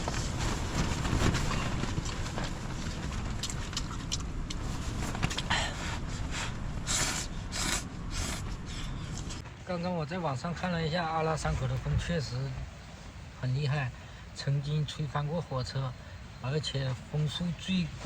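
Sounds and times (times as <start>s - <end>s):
strong wind buffeting microphone: 0.0s - 9.4s.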